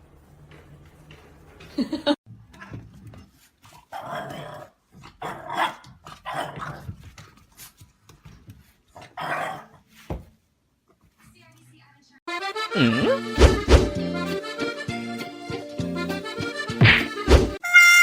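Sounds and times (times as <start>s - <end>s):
dog growling and barking: 3.9s - 7.0s, 9.0s - 9.8s.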